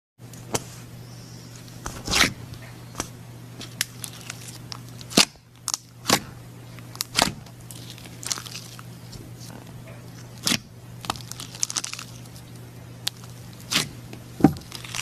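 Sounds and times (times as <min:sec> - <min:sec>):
low hum: 0:00.2 - 0:15.0
slime popping and crackling: 0:03.6 - 0:06.3, 0:06.9 - 0:08.9, 0:10.3 - 0:14.0, 0:14.6 - 0:15.0.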